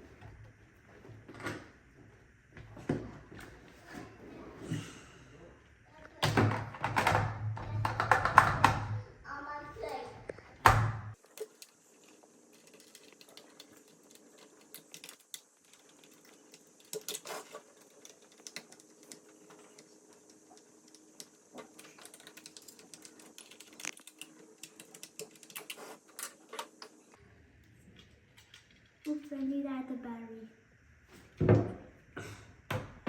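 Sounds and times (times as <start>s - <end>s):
plastic parts clicking and tapping: 6.2s - 9.0s, 10.3s - 27.0s.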